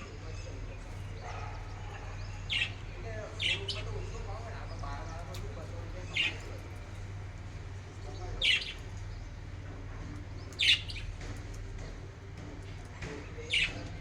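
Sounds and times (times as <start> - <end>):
steady low hum: 0.0 - 14.0
budgerigar chirps: 10.6 - 11.1.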